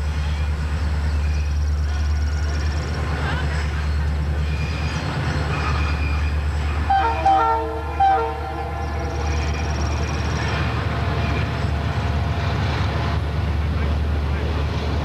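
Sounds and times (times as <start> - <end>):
locomotive engine rumble: 0.0 - 15.0
locomotive air horn blasts: 6.8 - 10.1.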